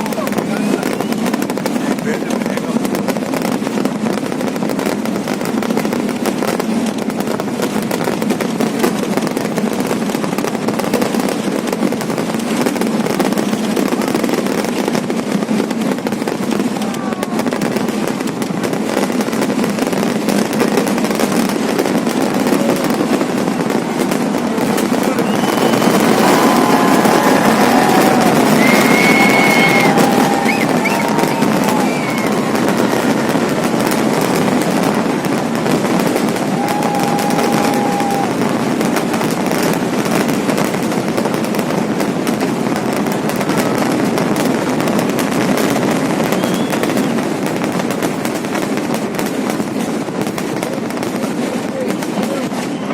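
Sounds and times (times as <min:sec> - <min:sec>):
fireworks crackling barrage: 0:00.0 - 0:52.9
firework whistles: 0:00.4 - 0:01.6, 0:24.6 - 0:34.9, 0:36.0 - 0:38.8, 0:46.0 - 0:47.3.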